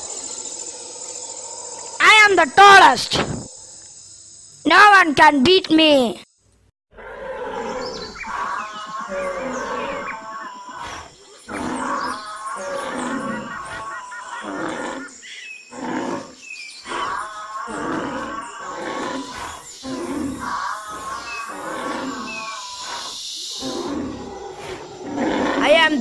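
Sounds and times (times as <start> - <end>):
animal roars and growls: 6.9 - 25.9.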